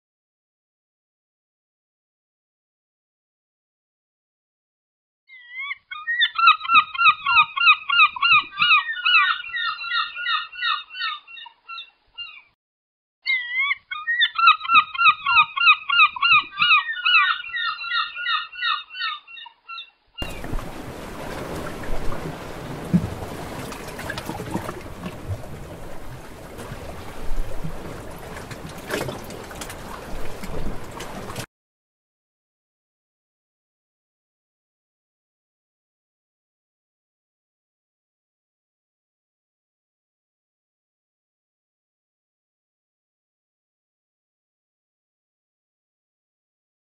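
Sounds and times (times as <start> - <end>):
gulls calling: 5.3 - 12.5, 13.3 - 31.5
sea waves rushing: 20.2 - 31.5.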